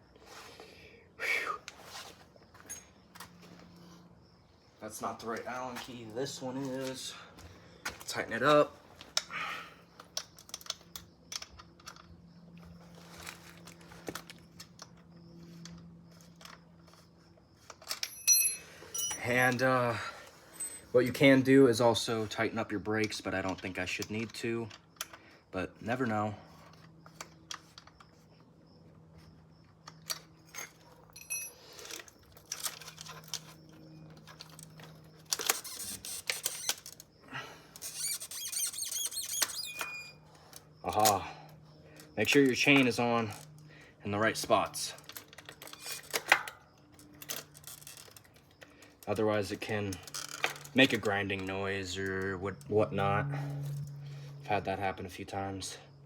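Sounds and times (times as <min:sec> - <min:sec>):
tool clicks and metallic clinks: 0:17.6 - 0:19.9, 0:29.8 - 0:41.3, 0:44.3 - 0:54.1
short metallic ring: 0:18.0 - 0:19.3, 0:31.2 - 0:31.7
low steady hum: 0:46.8 - 0:56.0.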